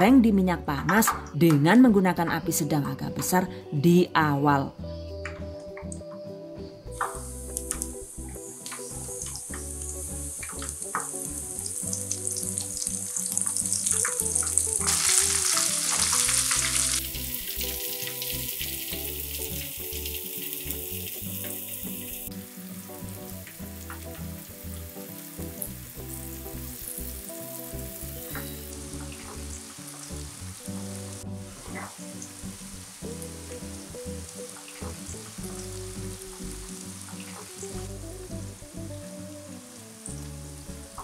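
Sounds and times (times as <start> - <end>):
food deep-frying in hot oil: 7.0 - 38.9.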